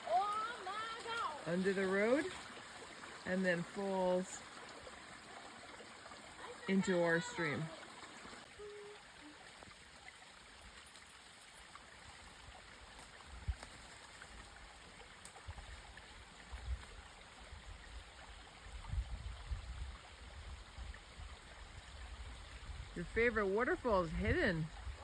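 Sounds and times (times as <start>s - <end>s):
water splashing from pipe: 0.0s - 17.4s.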